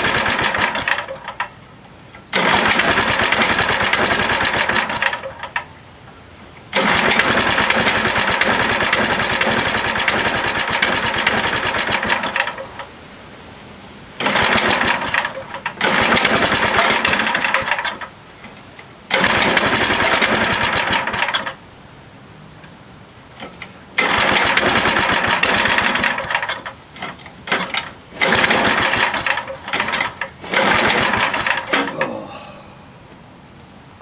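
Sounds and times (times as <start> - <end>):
small engine cranking: 0.0 - 1.4, 2.3 - 5.6, 6.7 - 12.9, 14.2 - 18.1, 19.1 - 21.6, 23.4 - 32.3.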